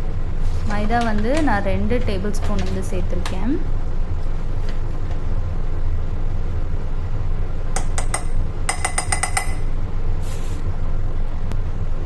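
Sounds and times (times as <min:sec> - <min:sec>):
steady low hum: 0:00.0 - 0:12.0
spoon clinking against bowl: 0:07.8 - 0:09.7.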